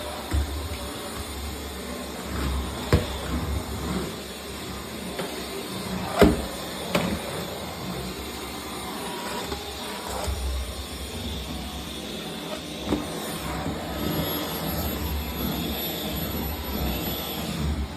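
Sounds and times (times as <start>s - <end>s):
vacuum cleaner knocking: 0.0s - 1.6s, 2.3s - 3.6s, 5.0s - 7.3s
vacuum cleaner running: 0.0s - 17.9s.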